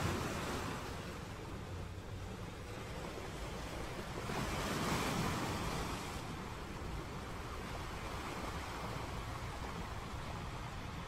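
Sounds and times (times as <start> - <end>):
water noise: 0.0 - 11.0
wind: 0.0 - 11.0.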